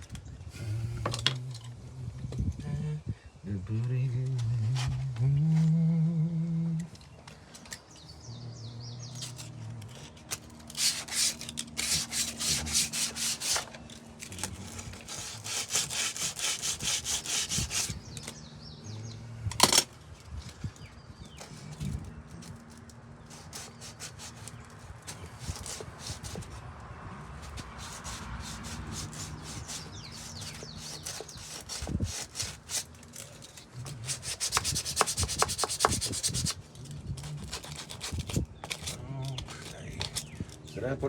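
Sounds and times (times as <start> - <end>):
hand sanding strokes: 10.7 - 18.3, 23.2 - 26.6, 27.3 - 36.7.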